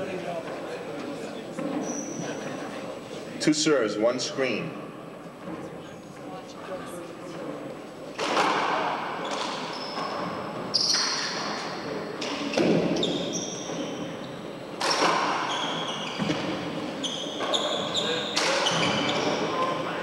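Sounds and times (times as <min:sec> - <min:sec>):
shoe squeaks: 0:01.8 - 0:02.5, 0:09.2 - 0:19.8.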